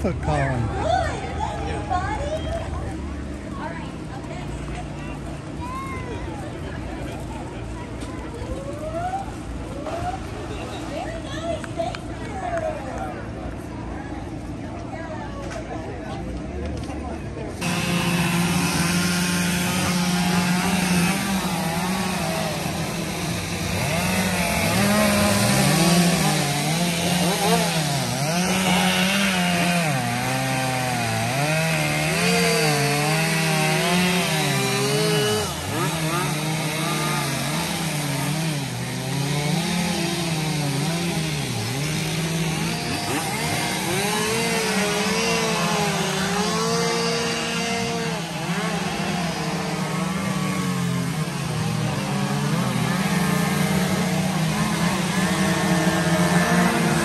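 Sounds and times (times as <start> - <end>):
chainsaws cutting: 17.5 - 57.0.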